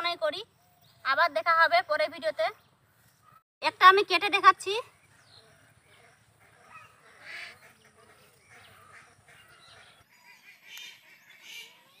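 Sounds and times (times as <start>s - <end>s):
honking bird calls: 5.2s - 12.0s.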